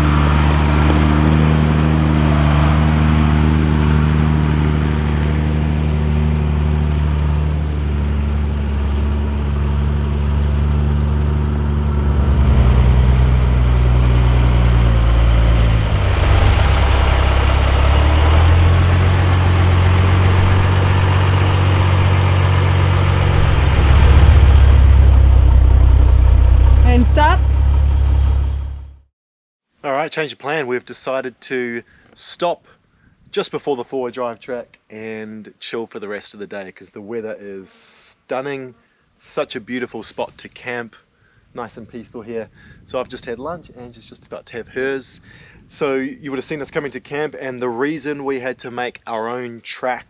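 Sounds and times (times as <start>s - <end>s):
truck diesel engine revving: 0.0s - 29.0s.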